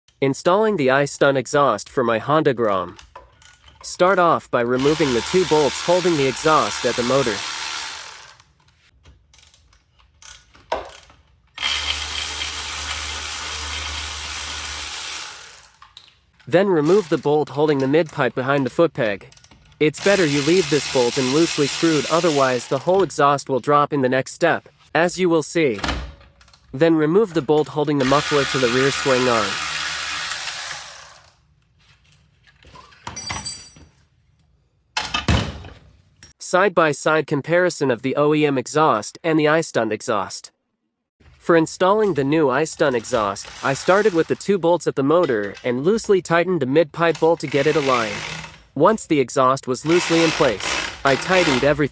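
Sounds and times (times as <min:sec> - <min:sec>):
power ratchet running: 0:04.8 - 0:08.5, 0:10.9 - 0:15.8, 0:16.8 - 0:17.3, 0:20.0 - 0:23.0, 0:28.0 - 0:31.4, 0:42.9 - 0:44.4, 0:47.1 - 0:48.7, 0:49.8 - 0:51.8
metallic clinking with ring: 0:33.2 - 0:33.9.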